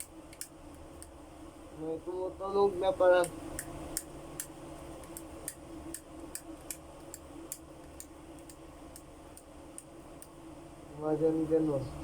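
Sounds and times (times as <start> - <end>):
ceiling fan clicking: 0.0 - 1.2, 2.4 - 10.4
ceiling fan humming: 0.0 - 12.0.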